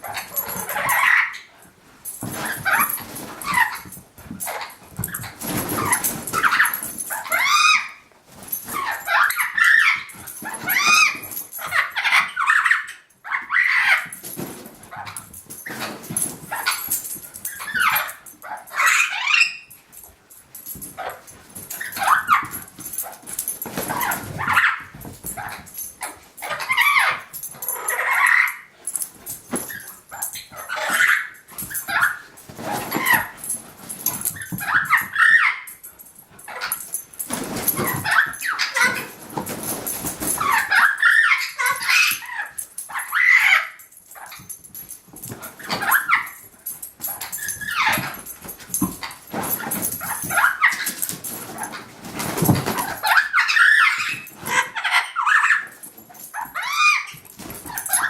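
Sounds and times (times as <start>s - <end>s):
puppy yipping and barking: 8.7s - 14.2s, 34.4s - 35.8s.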